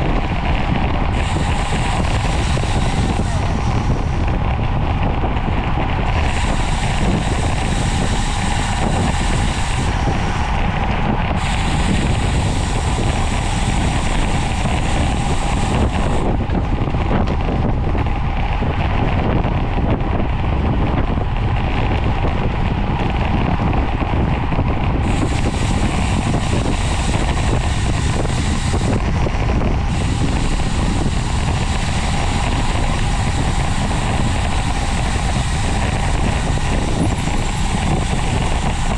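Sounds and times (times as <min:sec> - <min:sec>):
wind rush over microphone: 0:00.0 - 0:38.9
high hiss: 0:01.2 - 0:04.3, 0:11.4 - 0:16.4.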